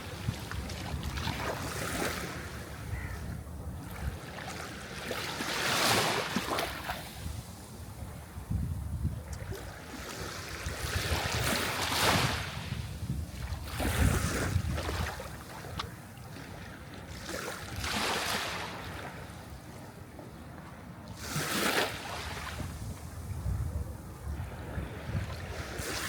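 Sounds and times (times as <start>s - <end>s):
waves breaking and washing in: 0.0s - 26.0s.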